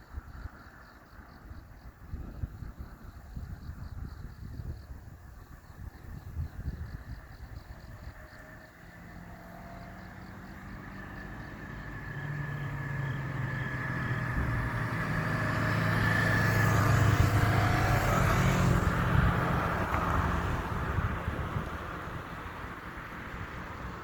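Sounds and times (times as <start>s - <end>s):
car passing by: 7.9s - 24.0s.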